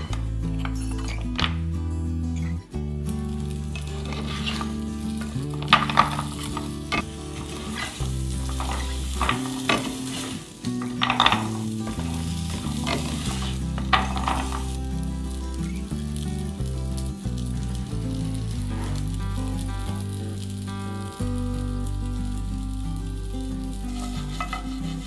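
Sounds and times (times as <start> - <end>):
dumplings sizzling in pan: 3.1 - 25.0
spatula scraping pan: 23.9 - 25.0.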